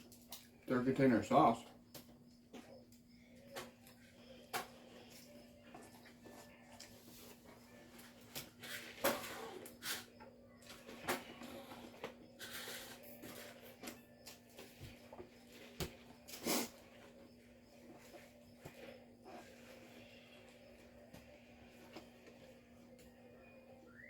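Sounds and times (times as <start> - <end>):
faint steady hum: 0.0 - 24.0
breathing through nose: 16.3 - 16.9.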